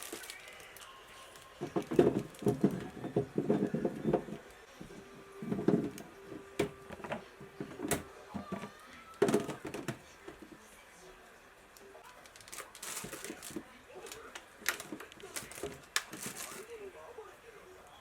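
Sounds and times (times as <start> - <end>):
kitchen items clattering: 1.4 - 10.6, 12.3 - 16.7.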